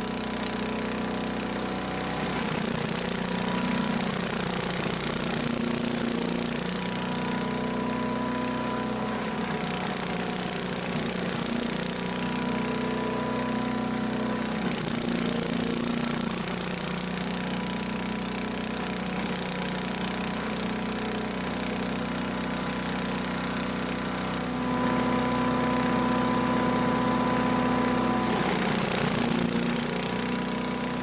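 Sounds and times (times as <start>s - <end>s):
chipper shredder engine running: 0.0s - 31.0s.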